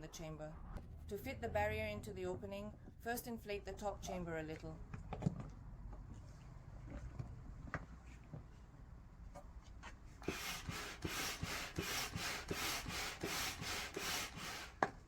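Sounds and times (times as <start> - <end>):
manual air pump strokes: 10.2 - 14.9.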